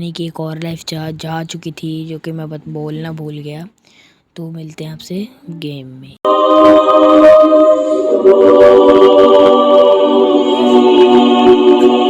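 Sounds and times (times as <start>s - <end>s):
choir-like chord music: 6.2s - 12.0s.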